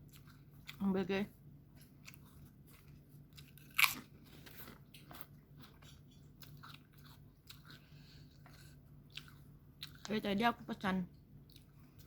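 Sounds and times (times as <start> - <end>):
crunchy chewing: 0.0 - 1.0, 1.6 - 10.3, 11.4 - 12.0
loud crunchy bite: 3.4 - 4.1.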